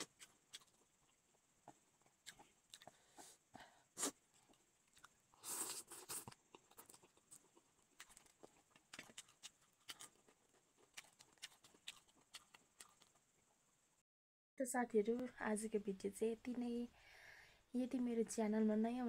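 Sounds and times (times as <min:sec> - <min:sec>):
chewing with mouth smacks: 0:00.0 - 0:03.3, 0:04.0 - 0:13.2.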